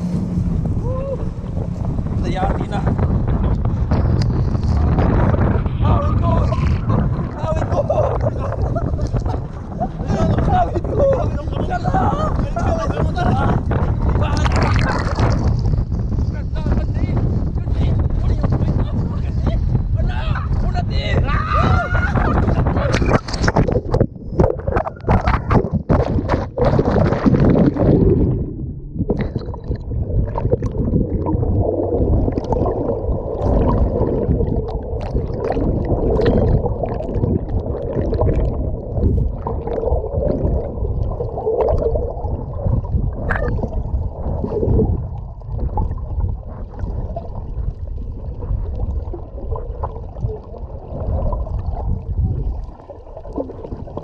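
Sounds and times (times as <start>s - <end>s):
water splashing: 0.0s - 15.9s, 21.6s - 54.0s
jet ski engine rumble: 0.0s - 25.5s
water rushing and gurgling: 0.0s - 54.0s
wind: 0.0s - 54.0s.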